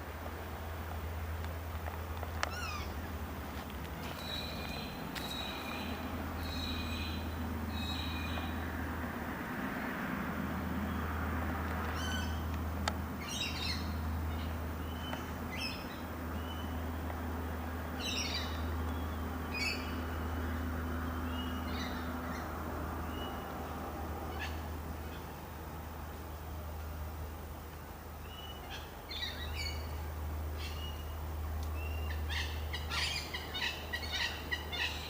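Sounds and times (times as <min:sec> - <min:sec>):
steady low rumble: 0:00.0 - 0:27.3
birds chirping: 0:02.2 - 0:08.8, 0:13.1 - 0:25.6, 0:28.2 - 0:35.0.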